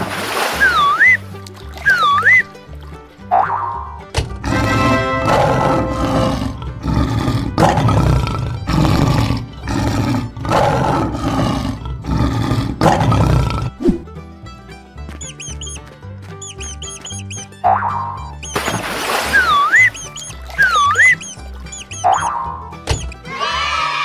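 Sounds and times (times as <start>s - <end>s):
upbeat children's music: 0.7s - 6.7s, 13.8s - 24.0s
lion roaring: 4.4s - 13.8s.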